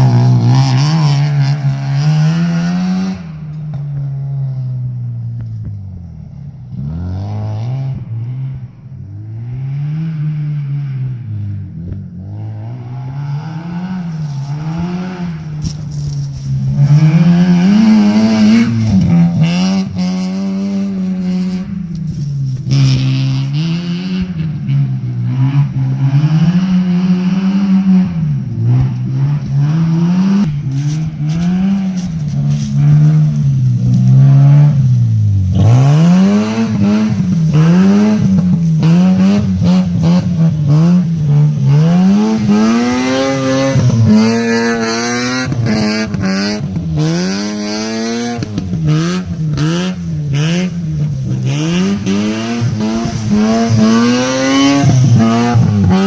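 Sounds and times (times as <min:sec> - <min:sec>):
rotary engine revving: 0:12.2 - 0:56.0.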